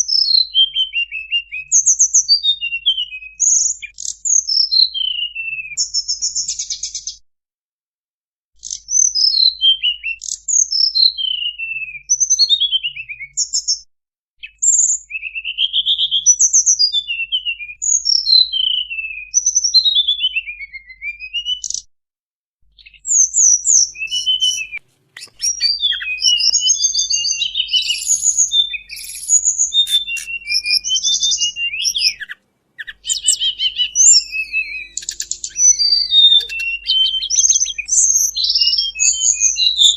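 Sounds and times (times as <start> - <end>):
bird whistling song: 0.0 - 7.2, 8.6 - 13.8, 14.4 - 21.9, 22.8 - 39.9
fast bird chattering: 23.7 - 39.9.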